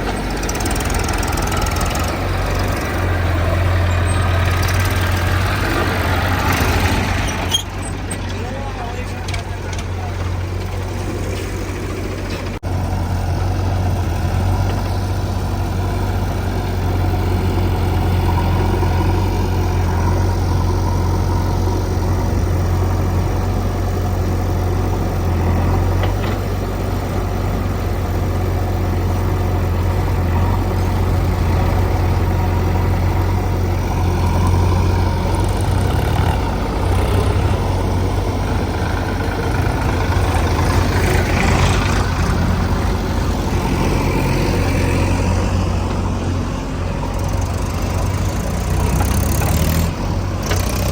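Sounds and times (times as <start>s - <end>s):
diesel engine humming: 0.0s - 50.9s.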